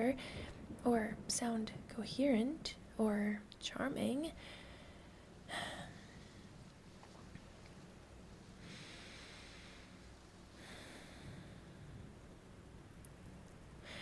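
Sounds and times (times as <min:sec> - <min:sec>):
woman breathing softly: 0:00.2 - 0:00.6, 0:04.4 - 0:06.6, 0:08.6 - 0:12.2, 0:13.8 - 0:14.0.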